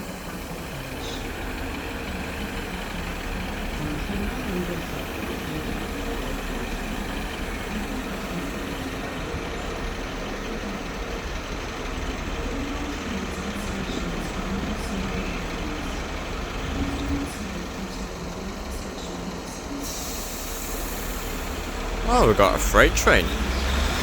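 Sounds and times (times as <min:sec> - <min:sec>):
diesel train engines humming: 0:00.0 - 0:17.8.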